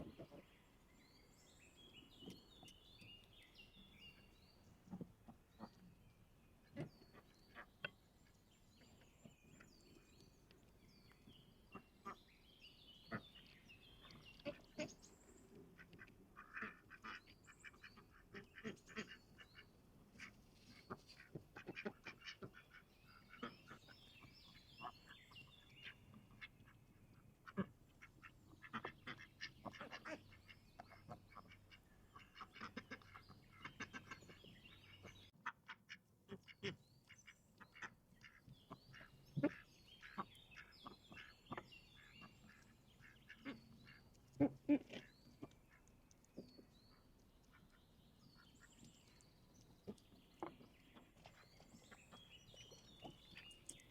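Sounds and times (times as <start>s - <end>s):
ducks quacking: 15.8s - 23.8s, 27.4s - 36.8s, 37.6s - 45.6s.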